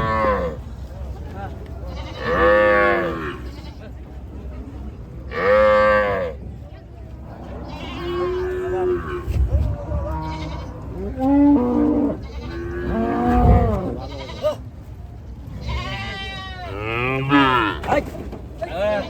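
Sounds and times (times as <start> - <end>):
farm animals calling: 7.4 - 9.4, 10.0 - 14.6, 15.5 - 17.9.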